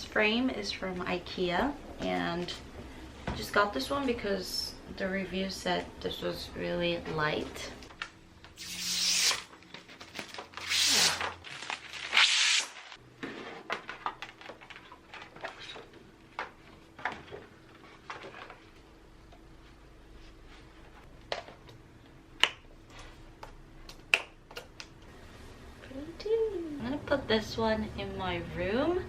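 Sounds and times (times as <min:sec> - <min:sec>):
packaging rustling and tearing: 0:08.6 - 0:13.0.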